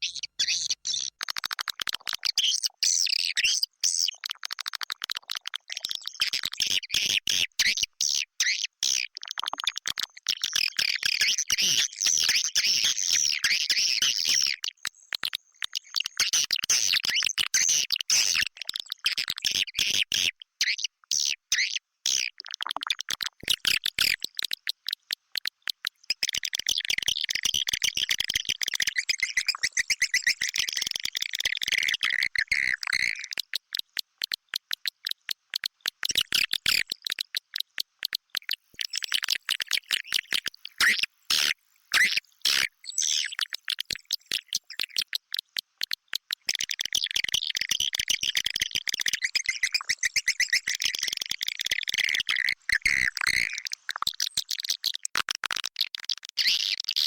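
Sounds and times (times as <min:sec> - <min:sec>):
rapid bird clicking: 0:01.2 - 0:02.4, 0:22.4 - 0:29.0, 0:30.5 - 0:40.7, 0:43.4 - 0:49.3.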